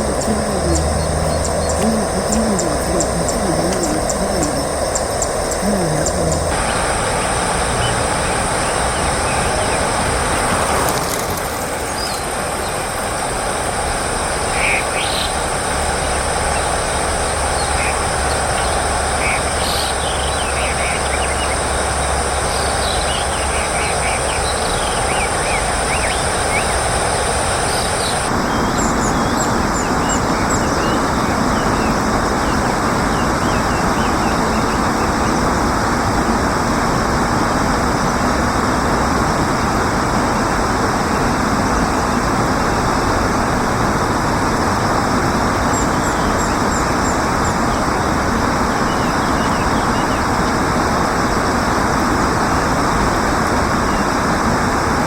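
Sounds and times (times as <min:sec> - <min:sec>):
small birds chirping: 0:00.0 - 0:12.8, 0:27.7 - 0:36.2
low rumble and hiss: 0:00.0 - 0:55.0.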